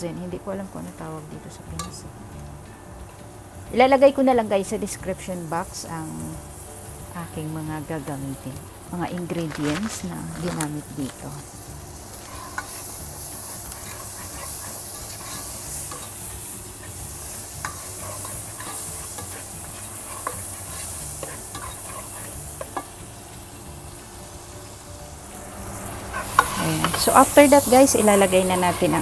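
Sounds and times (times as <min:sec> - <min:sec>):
onion sizzling in oil: 0:00.0 - 0:29.0
spoon stirring in pot: 0:12.2 - 0:22.9.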